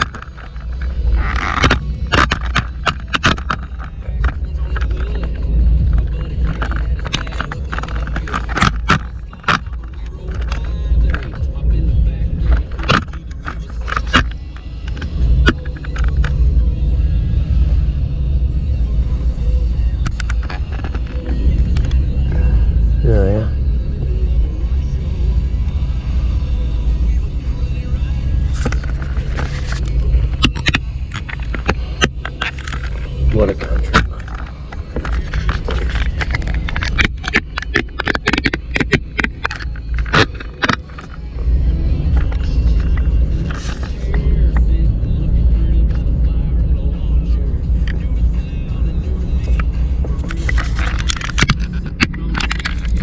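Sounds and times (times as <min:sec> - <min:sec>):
engine and road rumble: 0:00.0 - 0:53.0
sharp clicks and taps: 0:28.6 - 0:44.7.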